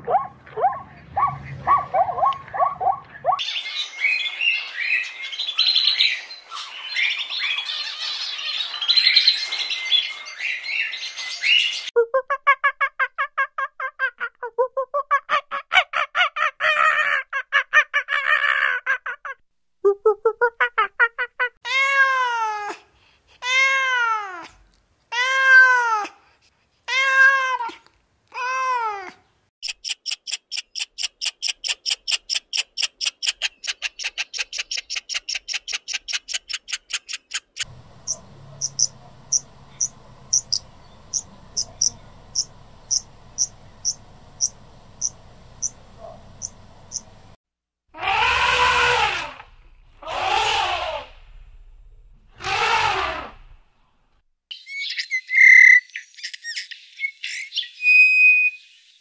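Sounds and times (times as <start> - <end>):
animal cries rising and falling: 21.6 - 22.8, 47.9 - 51.2, 52.3 - 53.5
squirrel chattering: 29.6 - 47.3
faint steady hum: 37.7 - 47.4
loud harsh call: 48.0 - 49.4, 50.0 - 51.1.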